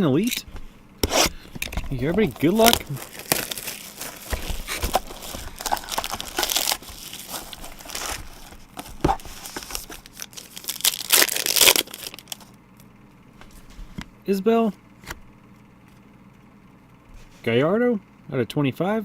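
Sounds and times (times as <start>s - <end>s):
card packaging crinkling: 0.5s - 12.6s
packaging ripping: 1.0s - 12.5s.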